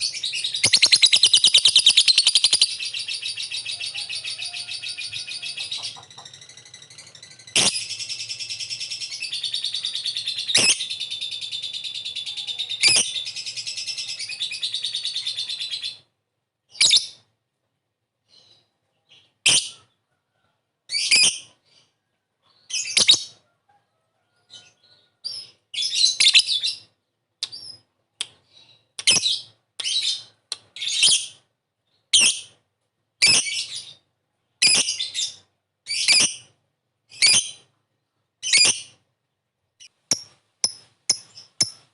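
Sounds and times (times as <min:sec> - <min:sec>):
lovebird chattering trill: 0:00.0 - 0:16.0, 0:39.8 - 0:41.9
lovebird sharp chirps: 0:00.0 - 0:16.0, 0:19.4 - 0:19.8, 0:22.6 - 0:23.3, 0:33.2 - 0:34.0, 0:34.6 - 0:36.5, 0:37.1 - 0:37.6, 0:38.4 - 0:39.0, 0:39.8 - 0:41.9.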